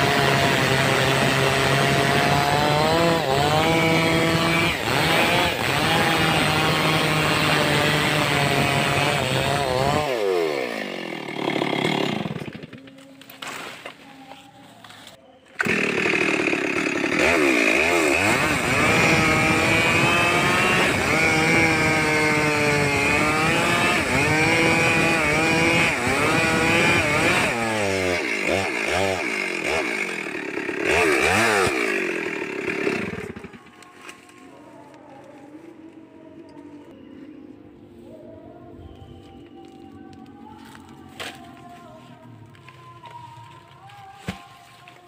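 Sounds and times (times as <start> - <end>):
chainsaw cutting timber: 0.0 - 13.9, 15.6 - 34.4.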